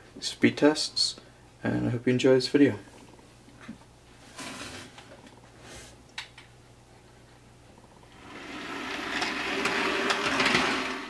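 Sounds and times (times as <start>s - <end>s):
model train motor whirring: 8.1s - 11.0s
wheels running on track: 8.1s - 11.0s.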